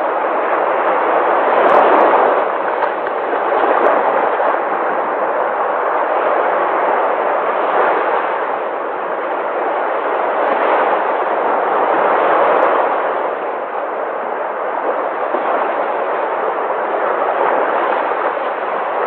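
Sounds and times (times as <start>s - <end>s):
sea waves breaking: 0.0s - 19.0s.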